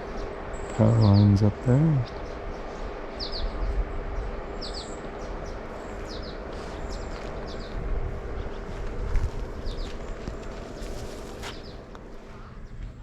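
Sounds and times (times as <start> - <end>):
steady rushing noise: 0.0 - 12.3
songbird chirping: 0.0 - 13.0.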